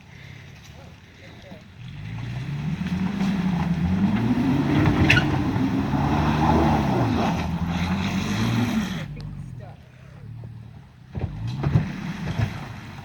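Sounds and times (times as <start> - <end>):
pickup truck engine labouring: 0.2 - 13.0
sharp high scrape or squeak: 5.0 - 5.4.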